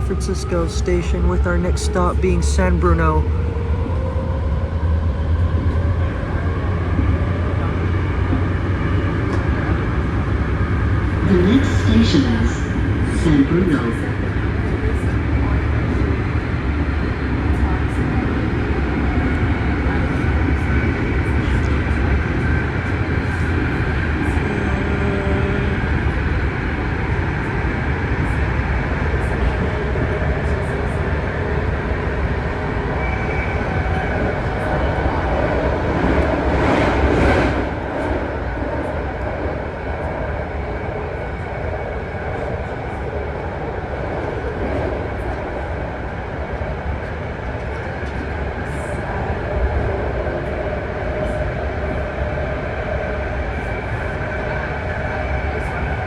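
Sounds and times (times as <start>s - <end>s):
train rumble and wheel noise: 0.0s - 56.0s.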